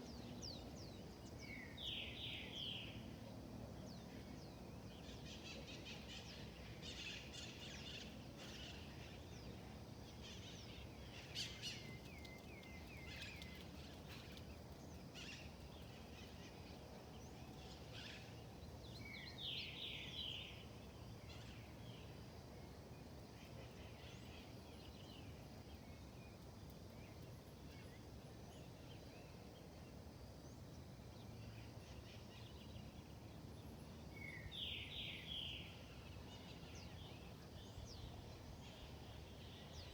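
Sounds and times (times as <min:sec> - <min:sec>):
low background hiss: 0:00.0 - 0:39.9.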